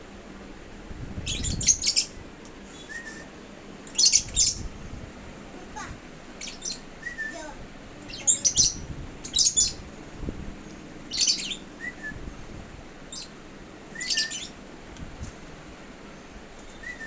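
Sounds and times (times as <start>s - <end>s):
birds chirping: 1.2s - 4.7s, 6.3s - 9.9s, 11.0s - 12.2s, 13.1s - 14.6s.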